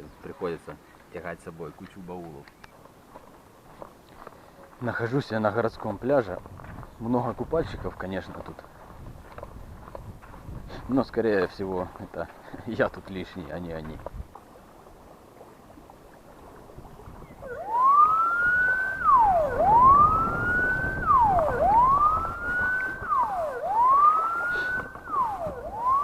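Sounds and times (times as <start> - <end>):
low wind rumble: 5.6 - 11.7, 13.8 - 26.0
siren wailing: 17.4 - 26.0.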